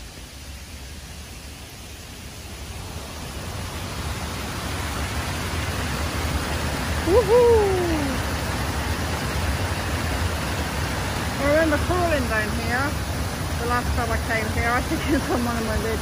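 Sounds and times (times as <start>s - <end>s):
rushing river water: 0.0s - 16.0s
person calling woohoo: 7.0s - 8.2s.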